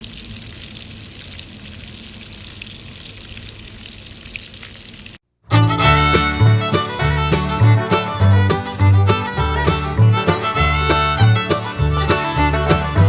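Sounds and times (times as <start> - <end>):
small crackles: 0.0 - 5.2
fiddle music: 5.5 - 13.0.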